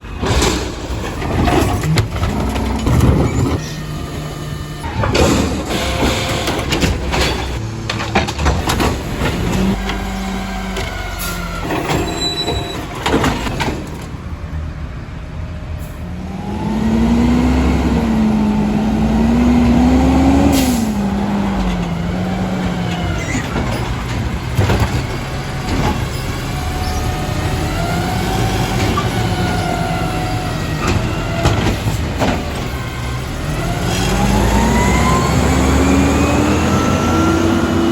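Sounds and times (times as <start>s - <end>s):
diesel engine running: 0.1s - 37.9s
knocks and bangs: 21.4s - 26.2s.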